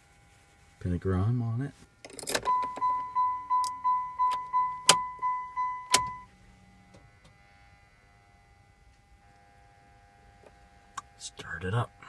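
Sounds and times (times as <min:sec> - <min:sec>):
dashboard warning chime: 0:02.4 - 0:06.3.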